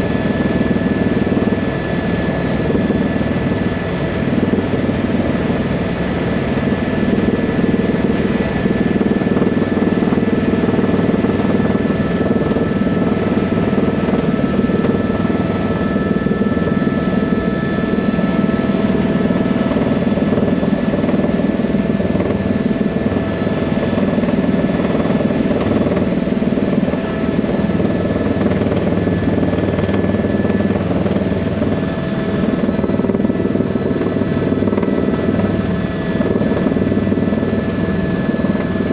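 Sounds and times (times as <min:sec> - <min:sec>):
helicopter rotor beating: 0:00.0 - 0:38.9
helicopter turbine whine: 0:00.0 - 0:38.9.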